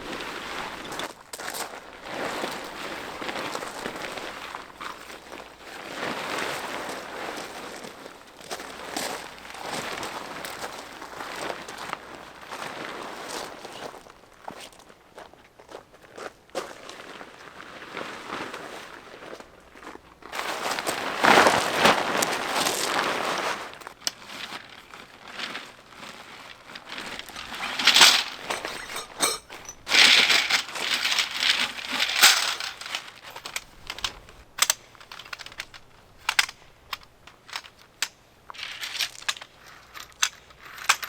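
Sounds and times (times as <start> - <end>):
material crinkling and rustling: 20.4 - 36.5.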